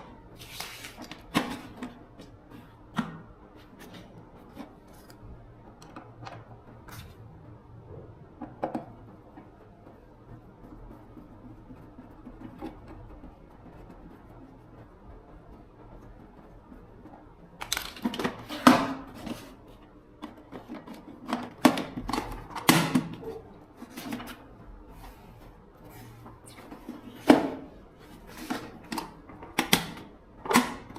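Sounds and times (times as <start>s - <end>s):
hard objects clicking and knocking: 15.6s - 19.5s.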